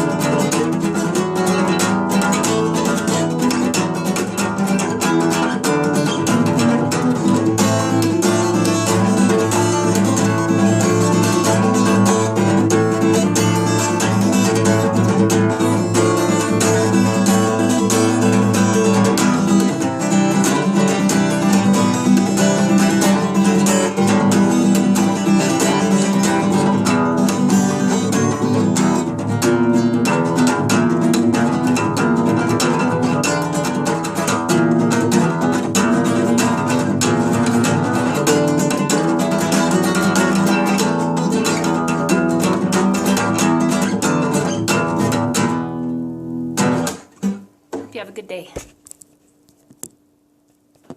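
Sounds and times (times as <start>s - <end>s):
acoustic guitar chords: 0.0s - 48.6s.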